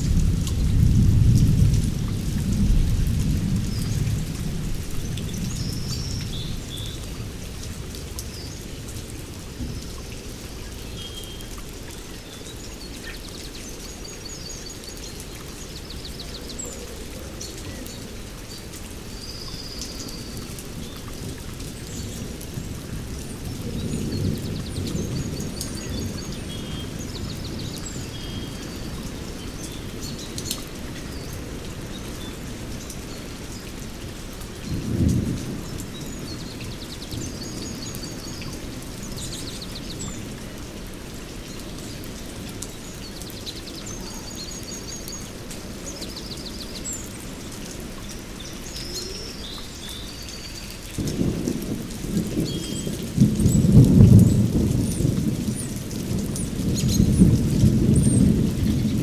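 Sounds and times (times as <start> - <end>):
thunder rumbling: 0.0 - 7.5, 51.0 - 59.0
steady rain: 0.0 - 59.0.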